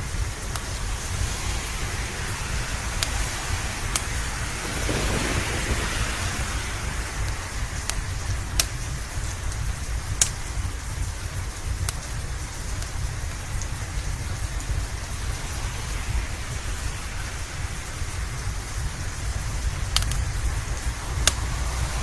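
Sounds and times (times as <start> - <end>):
wood fire crackling: 0.0 - 21.7
steady rain: 0.0 - 22.0
low rumble: 4.4 - 10.1.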